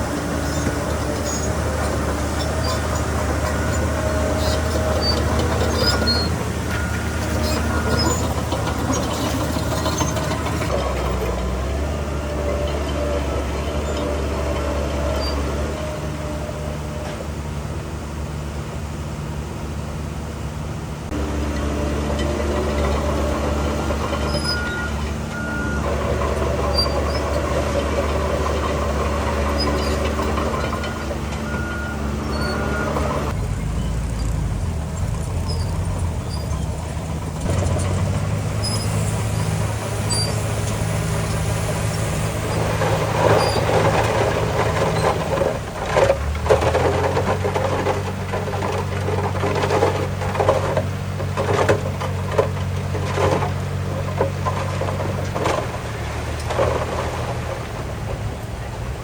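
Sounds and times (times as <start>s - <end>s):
heavy diesel machinery running: 0.0s - 59.0s
reversing alarm beeps: 24.3s - 25.9s, 30.8s - 33.1s.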